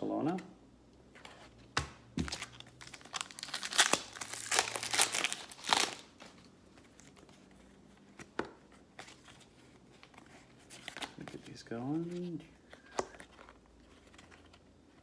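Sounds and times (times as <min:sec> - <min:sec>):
card pack wrapper tearing: 0:02.2 - 0:06.2.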